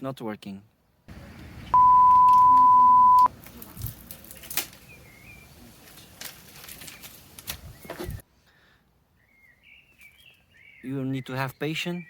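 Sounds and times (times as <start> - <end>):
loud electronic beep: 1.8 - 3.3.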